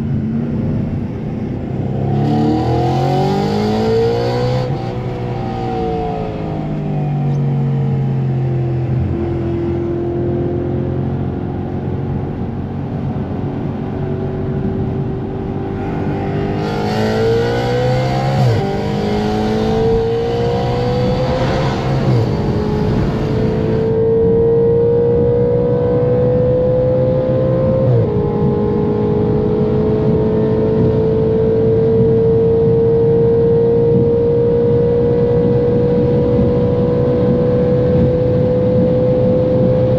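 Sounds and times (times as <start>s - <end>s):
car engine pulling hard: 10.4s - 25.4s.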